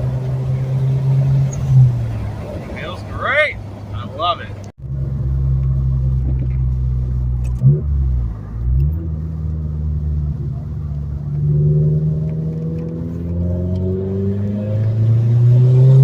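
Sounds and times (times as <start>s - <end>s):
car engine and exhaust under load: 0.0s - 16.0s.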